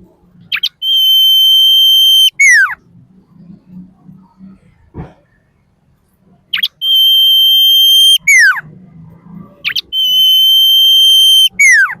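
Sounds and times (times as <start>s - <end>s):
bird singing whistled phrase: 0.5s - 2.6s, 6.6s - 8.5s, 9.7s - 12.0s.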